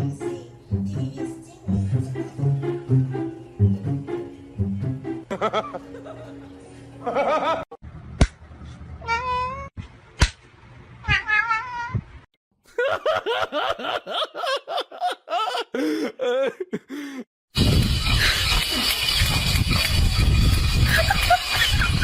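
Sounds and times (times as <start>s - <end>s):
cat meowing and yowling: 9.0s - 9.7s, 11.0s - 12.0s.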